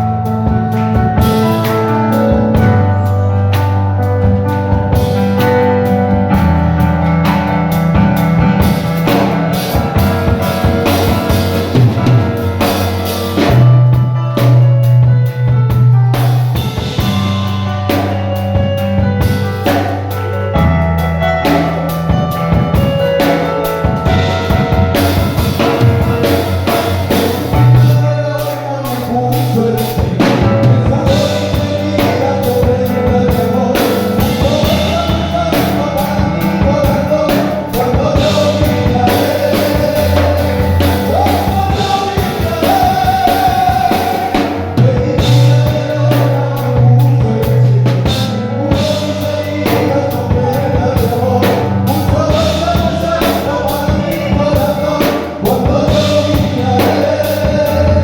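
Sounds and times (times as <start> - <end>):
bass guitar: 0.0 - 58.0
drum kit: 0.0 - 58.0
people singing: 8.7 - 13.8, 23.2 - 58.0.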